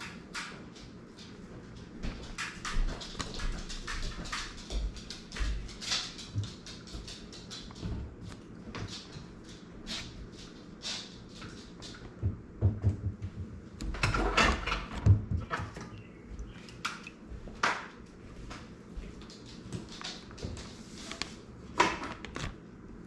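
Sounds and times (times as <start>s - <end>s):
clicks knocks and scrapes: 19.3s - 22.6s.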